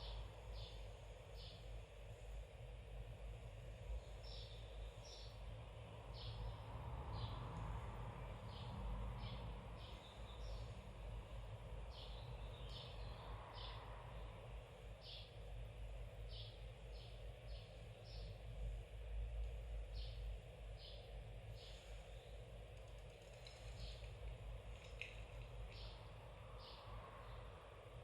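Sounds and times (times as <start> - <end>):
steady low hum: 0.0 - 28.0
small bird chirping: 25.7 - 26.0.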